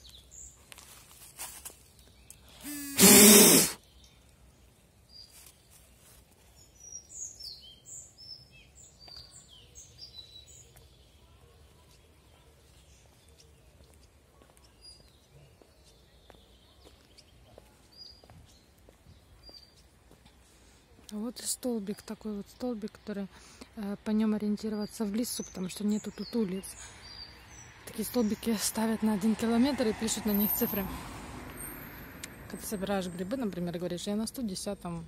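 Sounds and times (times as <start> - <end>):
small birds chirping: 0.0 - 31.8
loud burst of noise: 2.6 - 3.8.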